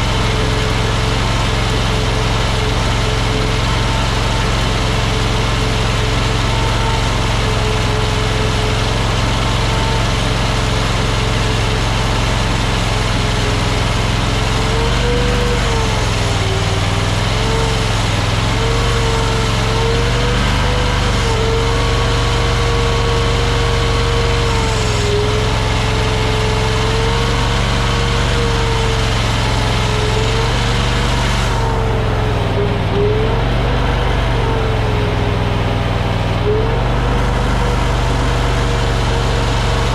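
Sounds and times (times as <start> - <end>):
skid steer engine running: 0.0 - 39.9
wavering whine: 24.2 - 39.9.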